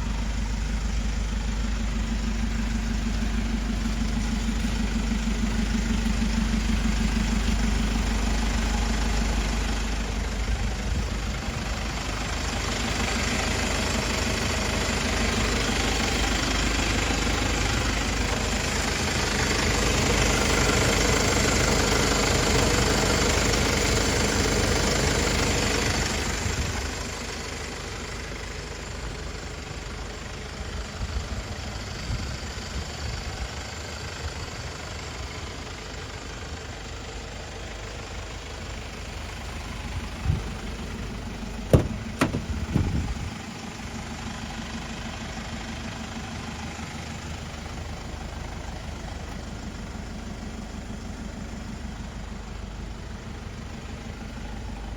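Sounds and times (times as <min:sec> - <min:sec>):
diesel engine idling: 0:00.0 - 0:54.9
sharp clicks or knocks: 0:41.7 - 0:43.1.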